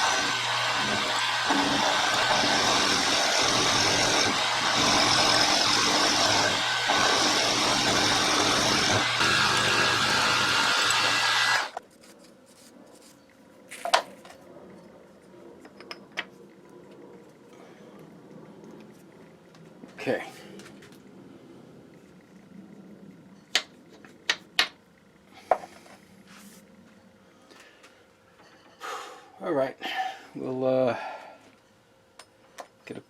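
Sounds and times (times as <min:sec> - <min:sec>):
low motor hum: 0:00.0 - 0:11.8
milling machine cutting metal: 0:00.0 - 0:11.8.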